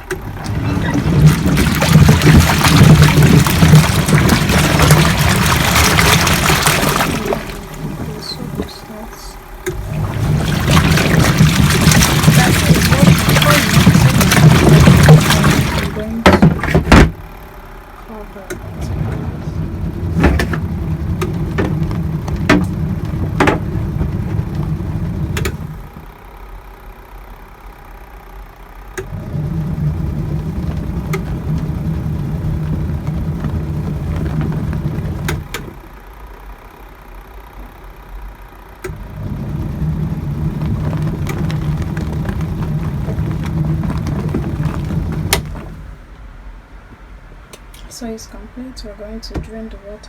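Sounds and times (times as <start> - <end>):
washing machine churning water: 0.0 - 26.4, 28.8 - 38.0, 38.7 - 49.9.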